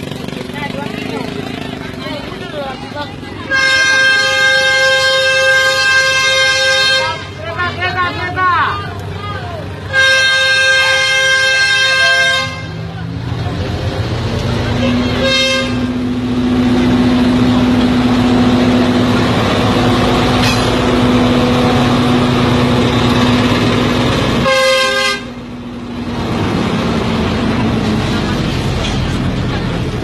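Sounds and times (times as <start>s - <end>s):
train rumbling: 0.0s - 30.0s
train horn blasts: 3.5s - 7.4s, 9.9s - 12.9s, 14.7s - 16.1s, 24.4s - 25.4s.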